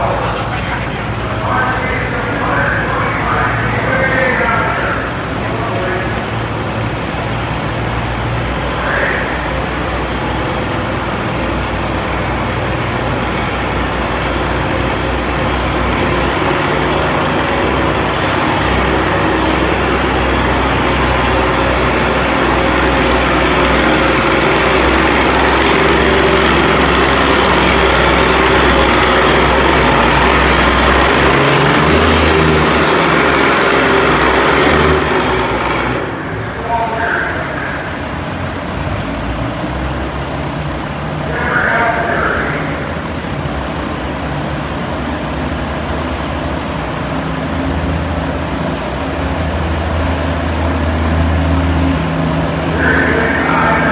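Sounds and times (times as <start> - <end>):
tractor engine droning under load: 0.0 - 53.9.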